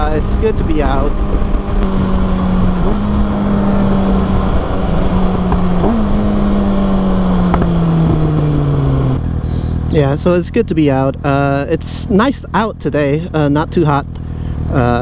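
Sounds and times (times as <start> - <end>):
wind noise: 0.0 - 9.2
motorcycle engine cruising: 0.0 - 15.0.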